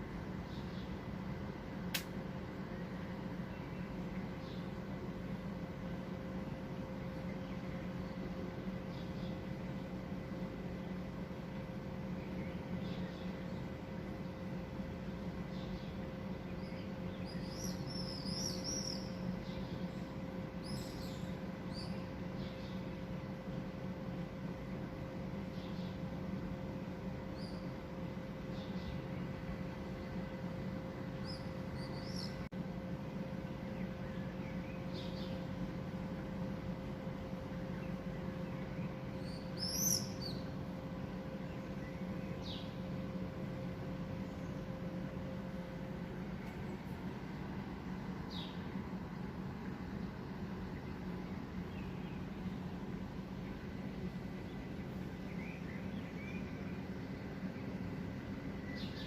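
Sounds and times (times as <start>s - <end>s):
faint constant hum: 0.0s - 59.0s
small bird chirping: 15.5s - 22.9s, 31.2s - 32.5s, 37.8s - 40.6s.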